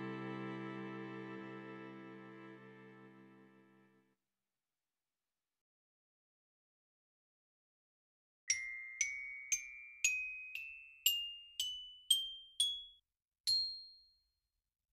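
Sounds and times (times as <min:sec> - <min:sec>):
glockenspiel-like jingle: 0:08.5 - 0:14.4.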